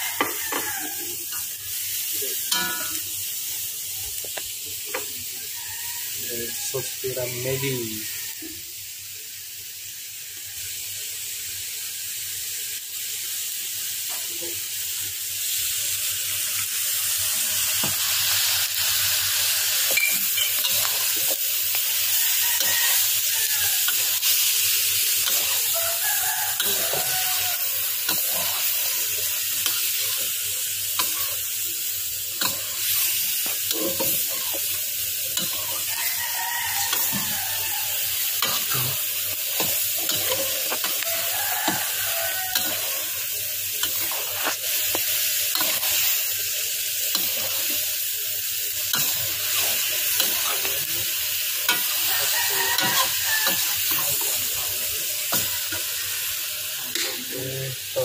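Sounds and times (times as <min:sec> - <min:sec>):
meat sizzling in a wok: 0:00.0 - 0:58.0
metal ladle scraping pan: 0:38.4 - 0:43.2.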